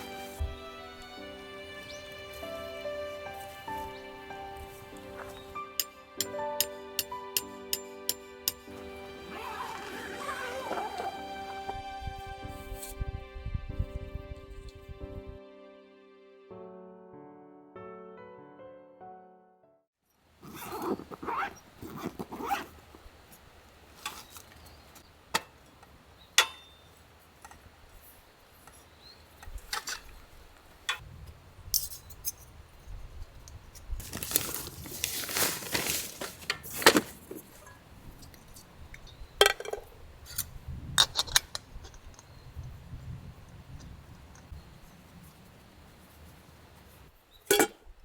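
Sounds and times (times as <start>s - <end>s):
clattering and rustling: 34.0s - 37.8s.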